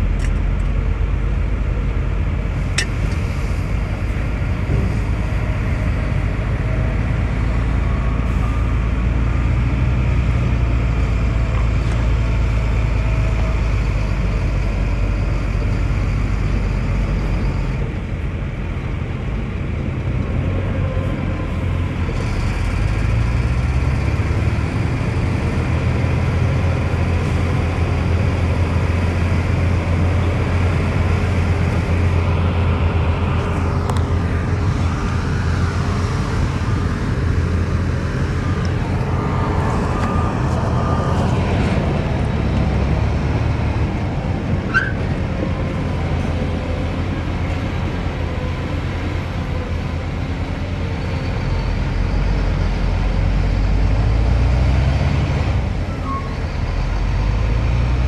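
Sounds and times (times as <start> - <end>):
heavy diesel machinery engine: 0.0 - 58.0.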